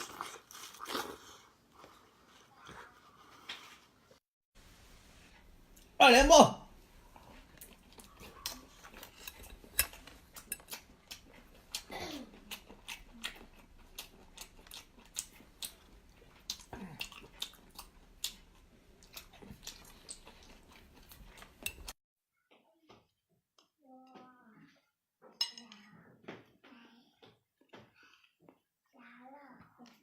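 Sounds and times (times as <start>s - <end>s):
chewing: 0.0s - 3.9s, 7.0s - 22.0s.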